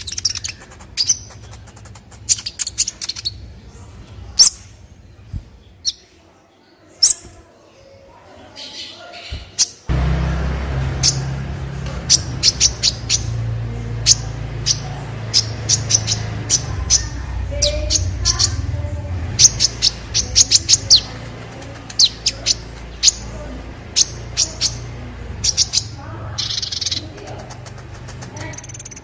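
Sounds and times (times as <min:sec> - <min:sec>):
sunbird high chirps: 0:00.0 - 0:06.2, 0:11.0 - 0:27.1, 0:28.3 - 0:29.0.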